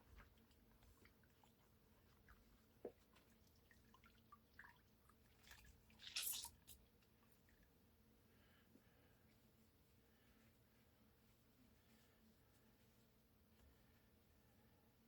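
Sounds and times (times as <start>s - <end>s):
wet squishes and drips: 0.0s - 7.6s.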